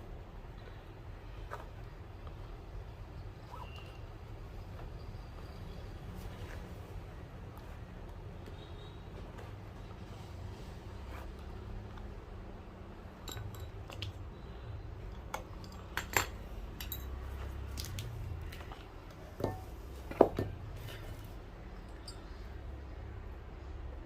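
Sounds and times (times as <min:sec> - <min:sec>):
tools tapping and clinking: 0:13.2 - 0:14.4, 0:15.0 - 0:22.6.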